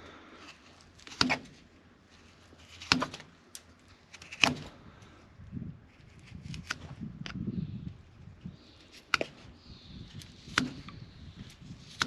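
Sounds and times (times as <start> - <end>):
knife cutting hoof: 1.0 - 1.6, 2.6 - 3.3, 10.4 - 11.0.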